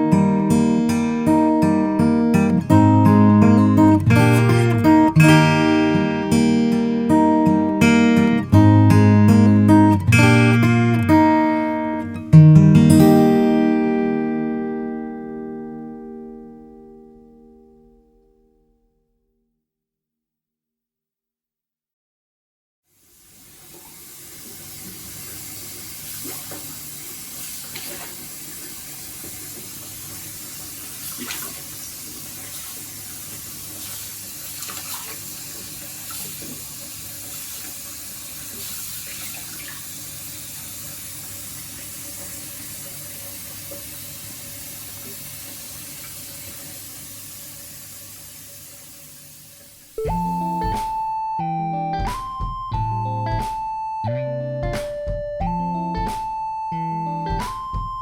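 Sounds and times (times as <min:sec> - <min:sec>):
tap water running into basin: 0:23.0 - 0:50.0
small water splashes: 0:26.0 - 0:28.8, 0:30.6 - 0:40.2.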